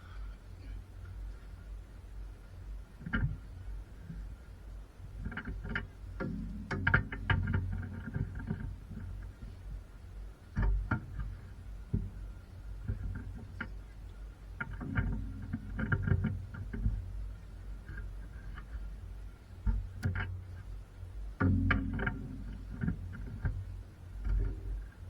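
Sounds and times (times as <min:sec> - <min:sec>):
steady low hum: 0:00.0 - 0:25.0
irregular knocks and clicks: 0:03.0 - 0:04.3, 0:05.2 - 0:09.8, 0:10.4 - 0:13.9, 0:14.5 - 0:25.0.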